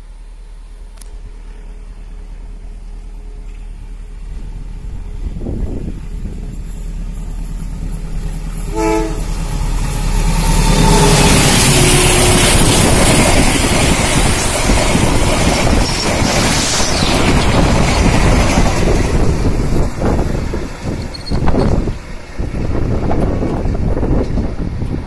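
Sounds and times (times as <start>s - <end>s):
train rushing rumble: 0.0s - 25.0s
train horn: 8.6s - 9.4s, 10.4s - 12.7s.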